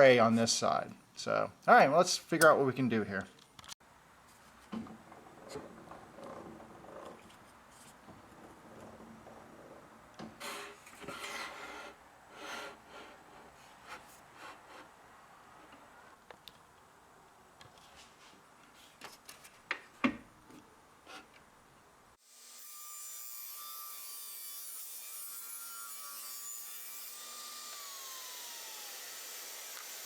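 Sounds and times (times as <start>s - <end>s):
power tool whirring: 26.7s - 30.0s.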